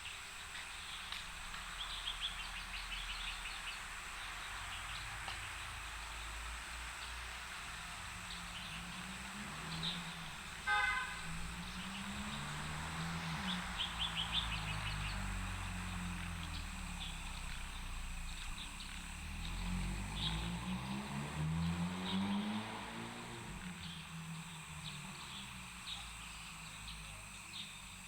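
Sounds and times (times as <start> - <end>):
distant road traffic: 0.0 - 28.0
birds chirping: 8.3 - 23.0
vehicle horn toot: 10.6 - 11.4.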